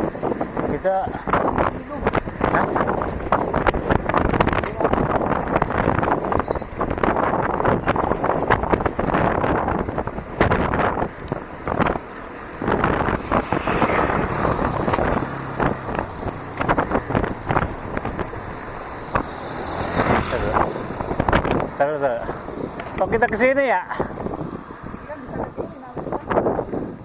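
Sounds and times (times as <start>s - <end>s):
bicycle tyre noise on dirt: 0.0s - 27.0s
bike rattling over bumps: 0.0s - 27.0s
wind buffeting microphone: 0.0s - 27.0s.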